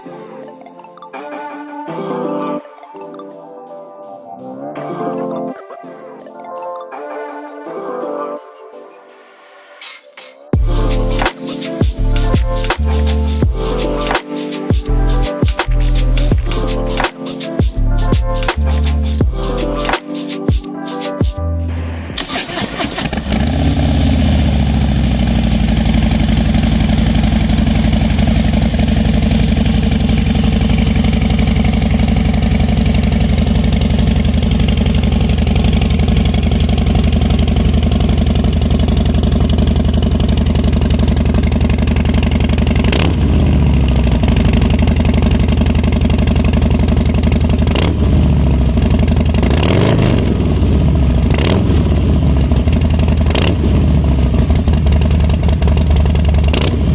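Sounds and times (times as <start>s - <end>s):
motorcycle engine idling: 23.0s - 56.9s.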